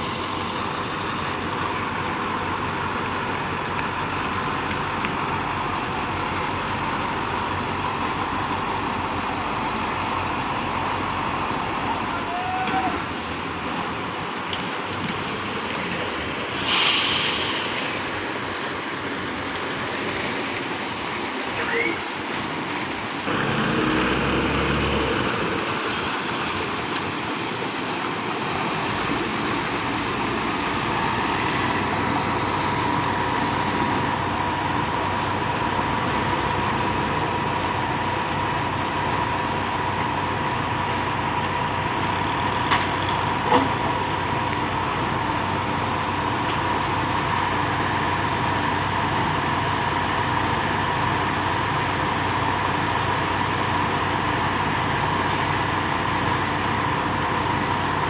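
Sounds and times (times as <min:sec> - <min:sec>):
concrete pump engine idling: 0:23.3 - 0:58.0.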